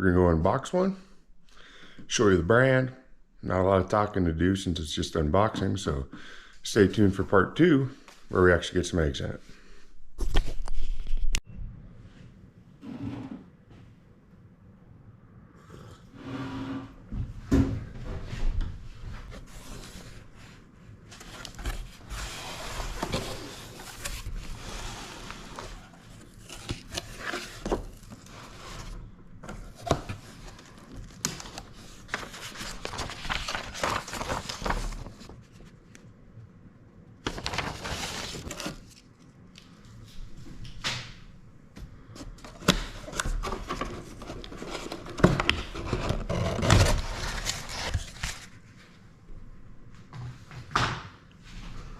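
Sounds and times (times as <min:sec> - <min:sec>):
cardboard packaging rustling: 0:21.1 - 0:35.8, 0:37.2 - 0:39.2, 0:42.3 - 0:48.6.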